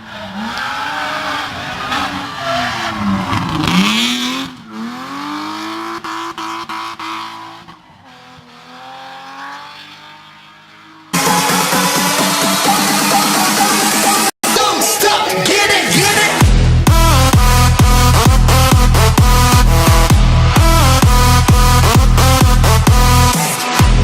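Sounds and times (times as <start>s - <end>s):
car engine revving hard: 0.0s - 14.0s, 16.4s - 24.0s.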